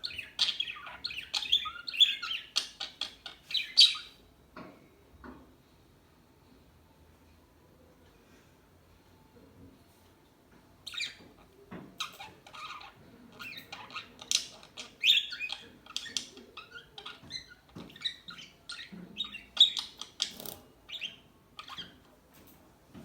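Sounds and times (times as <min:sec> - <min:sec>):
budgerigars chirping: 0:00.0 - 0:04.2, 0:12.0 - 0:22.0.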